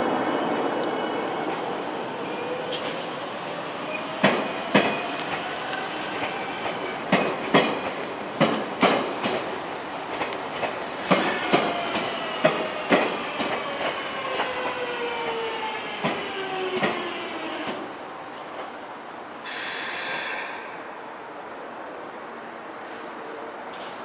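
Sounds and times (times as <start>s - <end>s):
train wheels clicking over rail joints: 4.2s - 5.5s, 6.1s - 9.5s, 10.1s - 15.4s.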